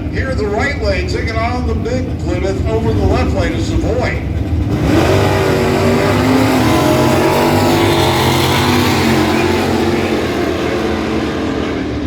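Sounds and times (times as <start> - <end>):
drag car engines running hard: 0.0 - 12.0.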